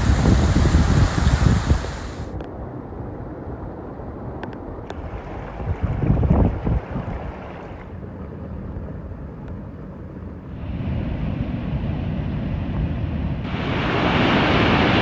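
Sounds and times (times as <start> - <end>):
heavy rain: 0.0 - 2.3
wind rumbling on microphone: 0.0 - 9.4.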